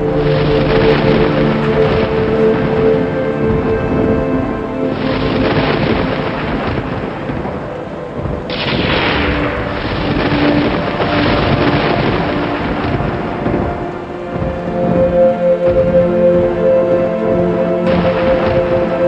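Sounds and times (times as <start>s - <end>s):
rain: 0.0s - 19.0s
soft music with held notes: 0.0s - 19.0s
thunder rumbling: 0.0s - 19.0s
sharp thunderclap: 4.9s - 14.6s, 17.9s - 19.0s.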